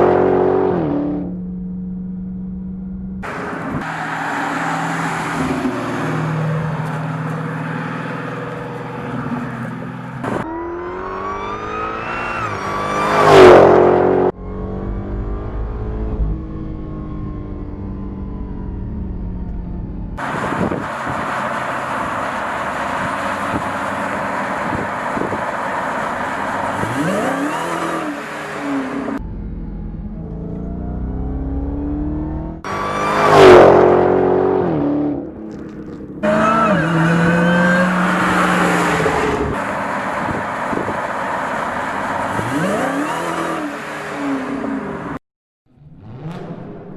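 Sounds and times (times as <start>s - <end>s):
car engine revving and accelerating: 0.0s - 19.4s, 20.2s - 29.2s, 29.8s - 45.2s, 45.8s - 46.9s
car rushing past: 3.2s - 17.8s, 30.4s - 45.2s.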